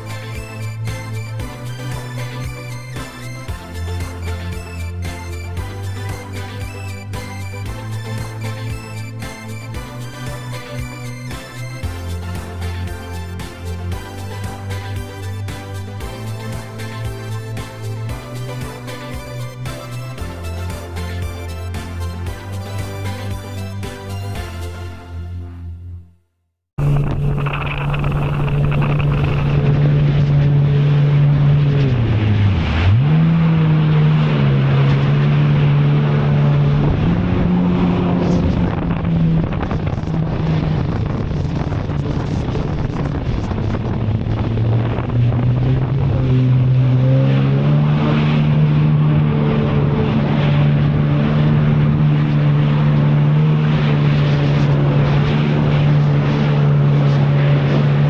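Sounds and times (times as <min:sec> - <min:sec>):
jet ski engine running: 0:00.0 - 0:25.9, 0:26.8 - 0:58.0
wind noise on microphone: 0:26.8 - 0:58.0.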